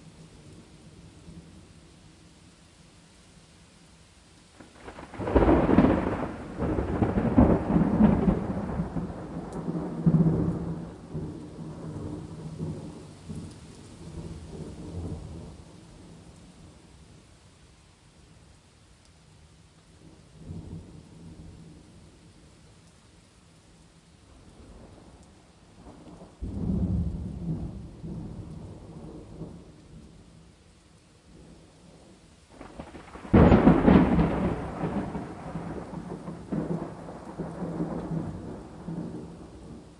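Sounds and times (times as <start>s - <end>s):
faint steady rain: 0.0s - 39.9s
thunder rumbling: 4.6s - 16.8s, 25.8s - 30.2s, 31.4s - 39.9s.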